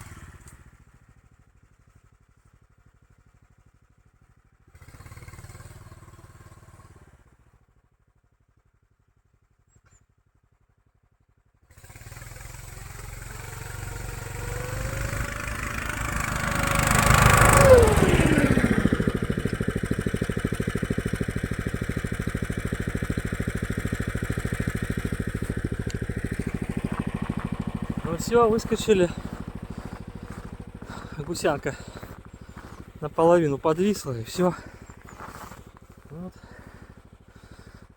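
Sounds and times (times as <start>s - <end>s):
snowmobile engine revving: 0.0s - 0.5s, 4.8s - 7.1s, 11.7s - 37.9s.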